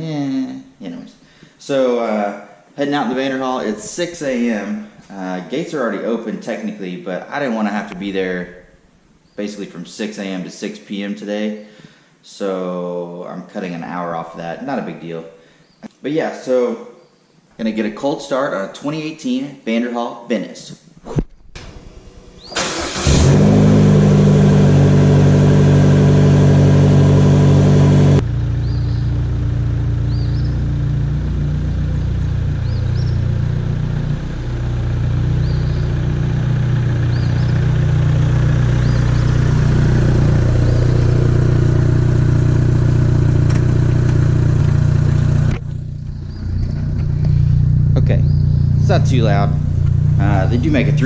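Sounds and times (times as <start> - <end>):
car engine idling: 21.9 - 51.0
engine cranking: 22.4 - 23.8.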